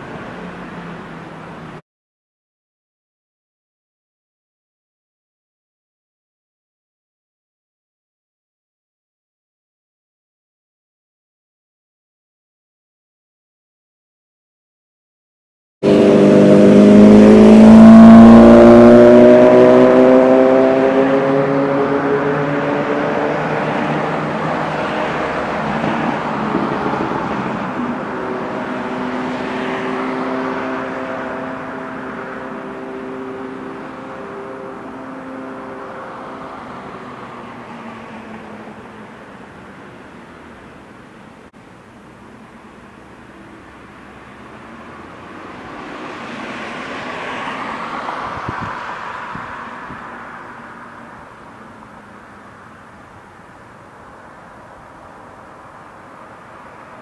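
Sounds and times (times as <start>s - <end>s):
road noise rush: 0.0s - 1.8s, 15.8s - 57.0s
vehicle engine hum: 0.0s - 1.8s, 15.8s - 57.0s.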